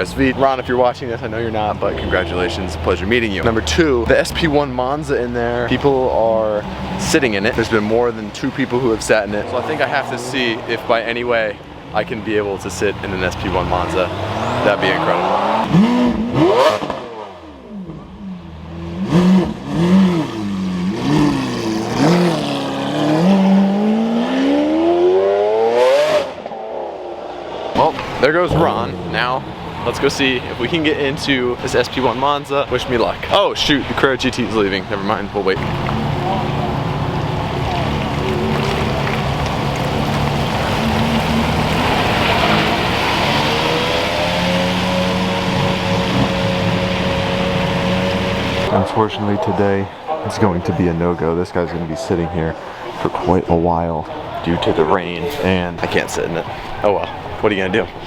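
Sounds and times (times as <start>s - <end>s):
car engine revving: 0.0s - 50.5s
rain hissing: 35.6s - 48.7s.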